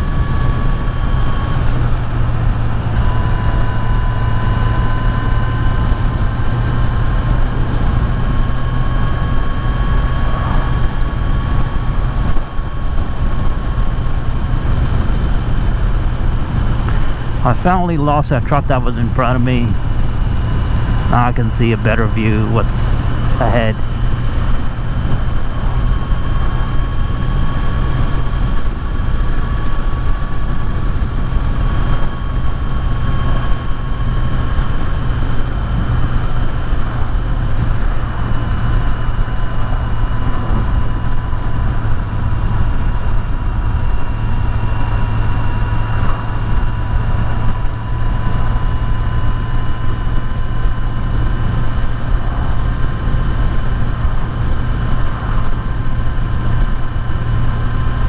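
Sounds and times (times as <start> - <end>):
wind rush on microphone: 0.0 - 17.4, 23.0 - 58.0
motorcycle engine running: 0.0 - 58.0
thin steady whine: 0.0 - 58.0.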